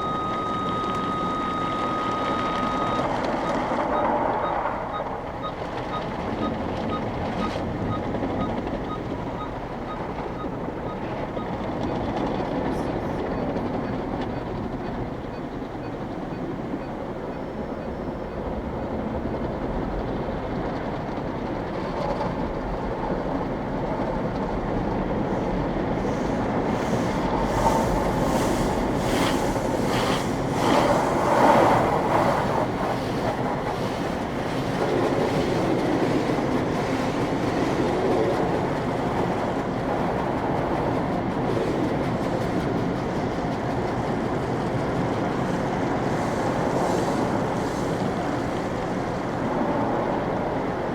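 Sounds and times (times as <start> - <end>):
car wash spraying water: 25.9 - 35.5.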